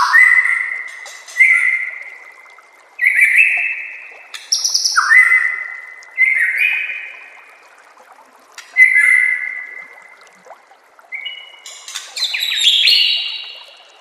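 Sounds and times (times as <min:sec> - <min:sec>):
bird singing whistled notes: 0:11.1 - 0:13.8.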